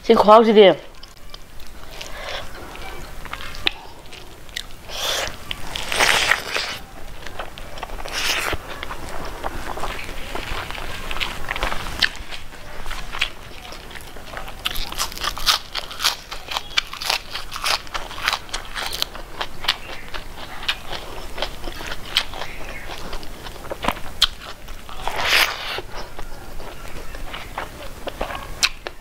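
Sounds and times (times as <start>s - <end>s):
crunchy chewing of food: 0.9s - 29.0s
wet mouth clicks: 1.0s - 9.0s, 23.8s - 29.0s.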